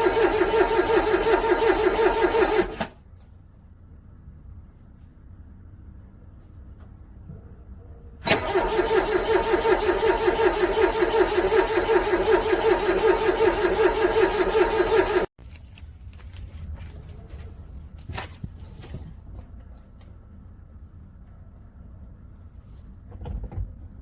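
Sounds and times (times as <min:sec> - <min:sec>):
car engine cranking: 0:00.0 - 0:03.0, 0:08.2 - 0:15.3.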